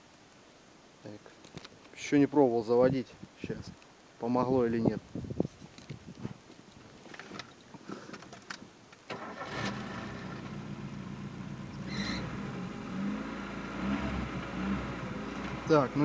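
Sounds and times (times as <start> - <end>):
car engine starting and idling: 9.1 - 16.0
drive belt squeal: 11.7 - 12.4.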